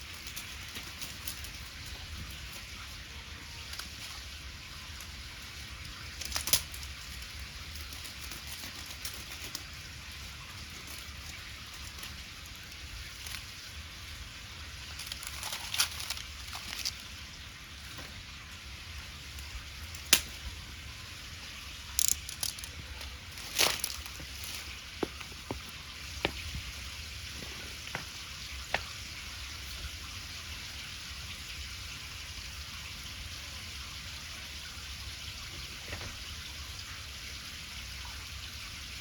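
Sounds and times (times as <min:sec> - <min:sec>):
wood bonfire crackling: 0:00.0 - 0:30.7
sharp fire pops: 0:19.9 - 0:20.6.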